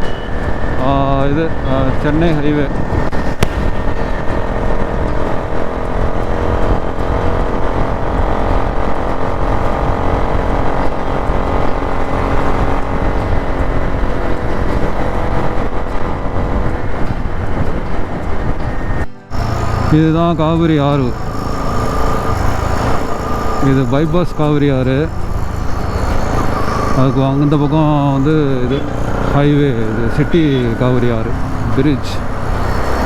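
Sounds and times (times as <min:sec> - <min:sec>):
motorcycle engine cruising: 0:00.0 - 0:33.0
wind rushing on microphone: 0:00.0 - 0:33.0.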